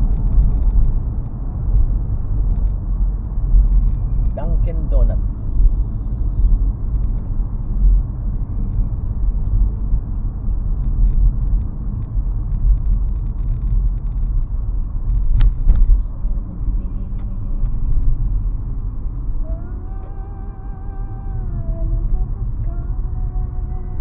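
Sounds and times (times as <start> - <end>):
road and engine rumble: 0.0 - 24.0
sharp click: 15.1 - 16.2.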